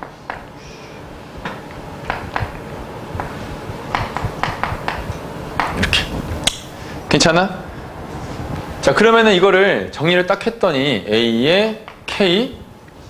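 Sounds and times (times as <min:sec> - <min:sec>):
taps and clicks writing on board: 0:03.9 - 0:05.9.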